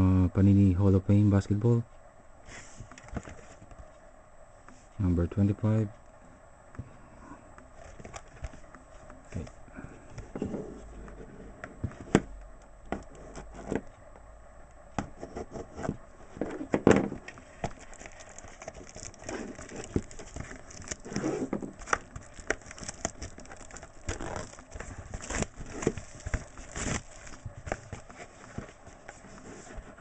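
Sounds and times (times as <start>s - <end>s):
wrapper crinkling: 17.2s - 29.4s.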